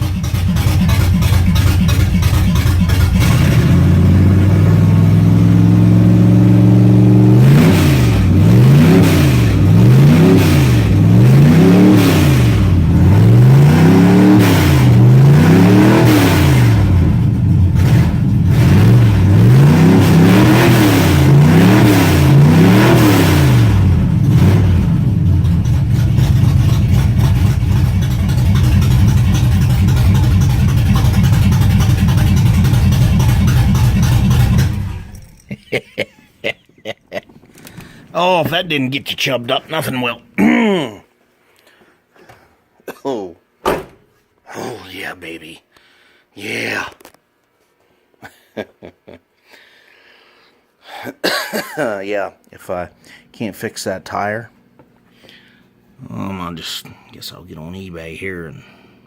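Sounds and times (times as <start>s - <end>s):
car engine idling and revving: 0.0s - 35.5s.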